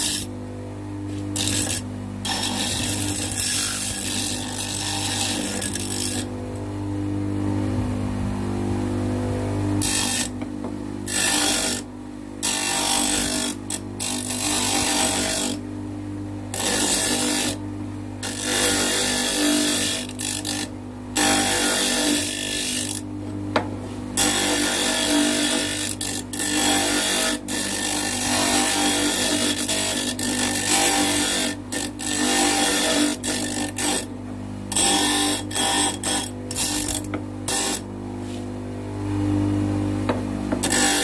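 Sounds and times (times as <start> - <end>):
steel grinding on wheel: 0.0 - 0.3, 1.1 - 6.3, 9.8 - 10.3, 11.0 - 15.6, 16.5 - 17.6, 18.2 - 23.0, 24.2 - 34.1, 34.7 - 38.4, 40.6 - 41.0
bench grinder motor hum: 0.0 - 41.0.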